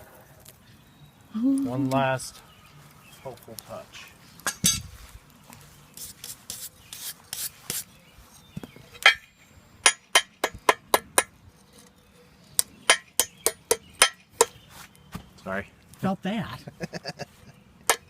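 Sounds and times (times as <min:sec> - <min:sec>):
scraping strokes: 0:05.7 - 0:08.4
hammer striking steel on anvil: 0:09.0 - 0:11.3, 0:12.9 - 0:14.5.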